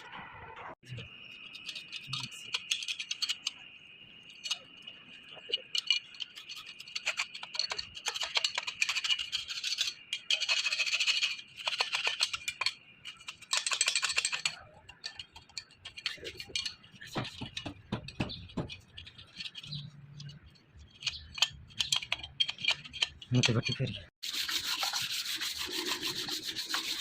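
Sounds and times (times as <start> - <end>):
hand tool rasping on metal: 13.2 - 27.0.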